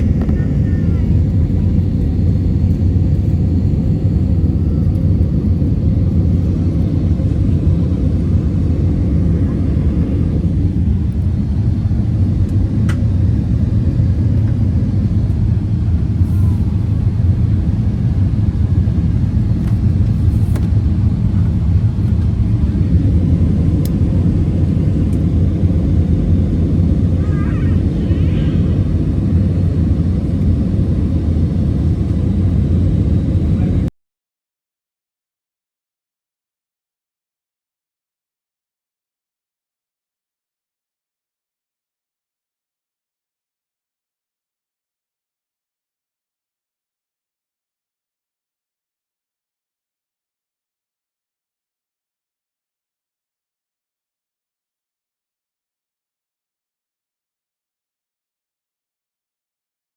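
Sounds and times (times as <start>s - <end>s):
airplane cabin engine rumble: 0.0s - 33.9s.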